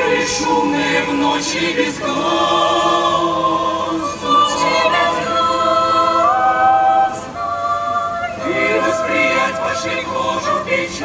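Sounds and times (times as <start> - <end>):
choir singing a cappella: 0.0 - 11.0.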